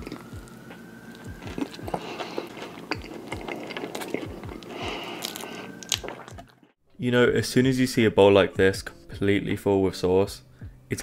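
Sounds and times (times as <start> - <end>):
low thudding beat: 0.0 - 3.1, 10.6 - 10.9
wet biting and chewing: 0.0 - 6.7
mouth clicks and smacks: 1.3 - 6.6.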